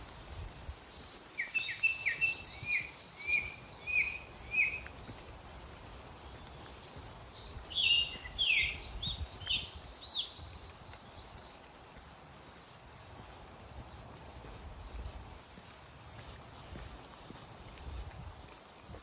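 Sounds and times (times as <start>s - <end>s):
songbirds chirping: 0.0s - 18.5s
rain hissing in woodland: 0.0s - 19.0s.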